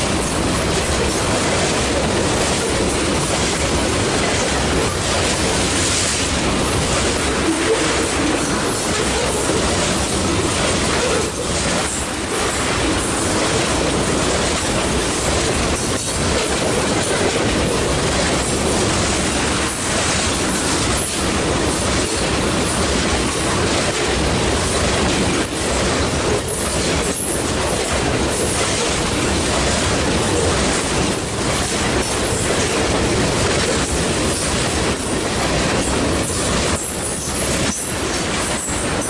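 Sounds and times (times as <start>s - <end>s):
steel wheels rumbling on rails: 0.0s - 39.0s.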